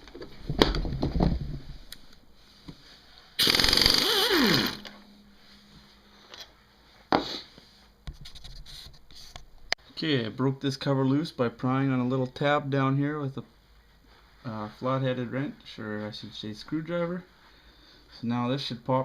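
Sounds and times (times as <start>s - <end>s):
impact wrench rattling: 3.4s - 5.0s.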